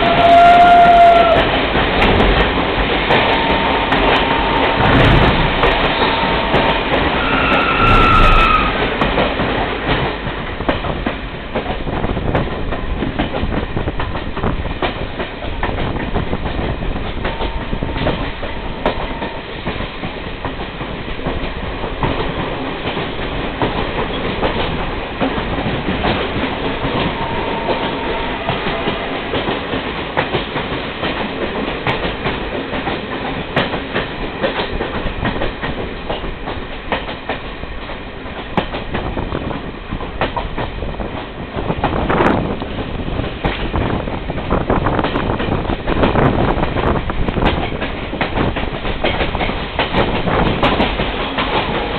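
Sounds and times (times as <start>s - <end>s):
train wheels clattering on rails: 0.0s - 51.9s
high squeal: 7.2s - 8.8s.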